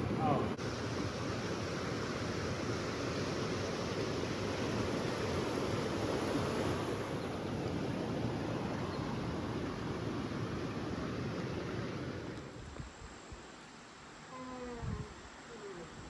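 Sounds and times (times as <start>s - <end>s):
river water rushing over rocks: 0.0s - 12.3s.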